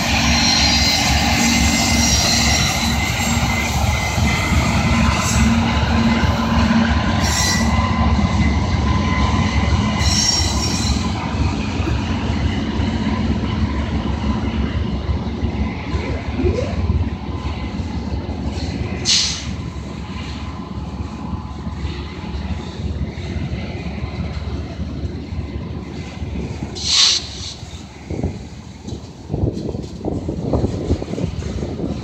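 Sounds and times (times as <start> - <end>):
high wheel squeal: 0.0 - 8.1, 10.0 - 11.2
train wheels rumbling on rail: 0.0 - 32.0.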